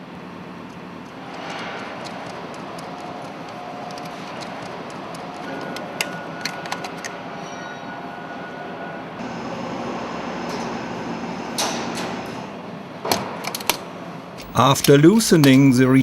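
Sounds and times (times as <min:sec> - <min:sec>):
faint hum: 0:14.4 - 0:16.0.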